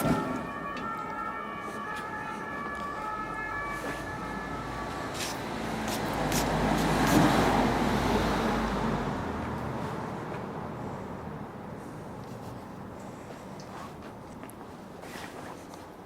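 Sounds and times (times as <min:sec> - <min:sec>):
motor vehicle passing: 0:04.4 - 0:11.6.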